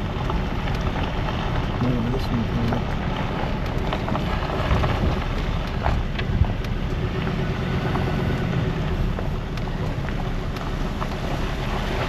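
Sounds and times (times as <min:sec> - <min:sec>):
car engine and tyres on road: 0:00.0 - 0:12.0
faint ticks and knocks: 0:02.4 - 0:12.0.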